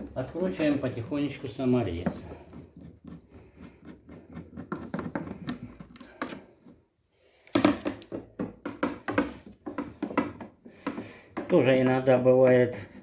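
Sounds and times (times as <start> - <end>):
screwdriver clicks and knocks on plastic: 7.5 - 11.6.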